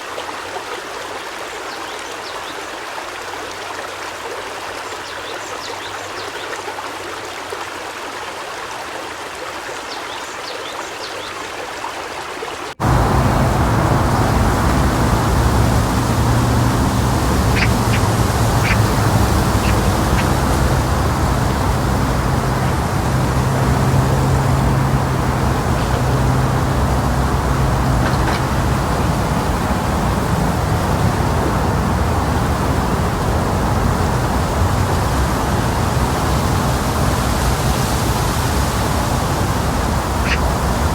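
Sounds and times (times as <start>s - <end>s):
flowing water: 0.0s - 40.9s
open-air noise: 0.0s - 40.9s
steady motor hum: 12.8s - 40.9s
faint bird chirps: 14.2s - 22.5s
duck quacks: 40.2s - 40.5s.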